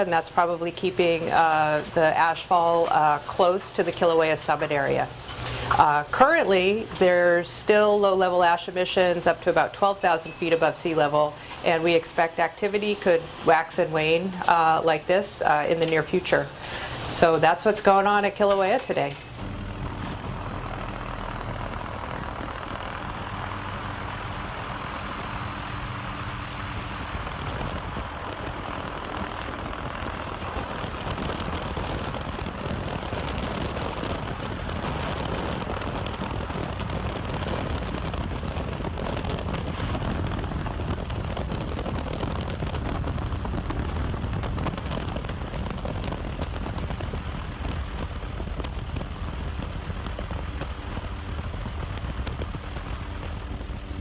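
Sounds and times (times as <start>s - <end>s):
low even-toned hum: 0.0s - 54.0s
engine drone with hiss: 19.3s - 54.0s.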